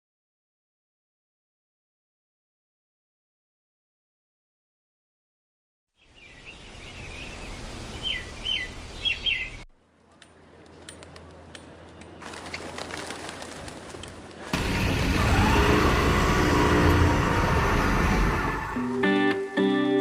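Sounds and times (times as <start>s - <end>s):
bird chirping: 6.0s - 9.7s
background noise: 6.0s - 20.0s.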